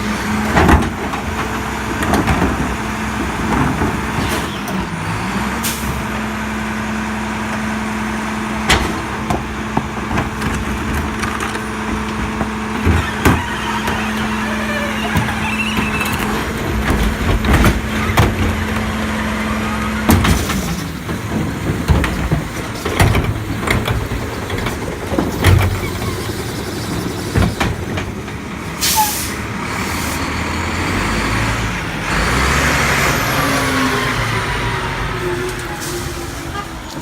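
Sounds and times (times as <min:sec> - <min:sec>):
garbage truck engine humming: 0:00.0 - 0:37.0
sharp clanks and knocks: 0:20.0 - 0:26.3
air brake hiss: 0:28.8 - 0:29.4.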